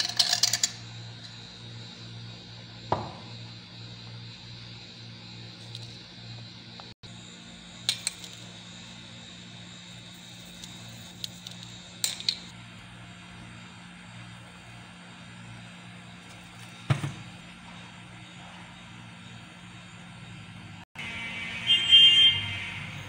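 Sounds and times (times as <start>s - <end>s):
steady low hum: 0.0s - 21.7s.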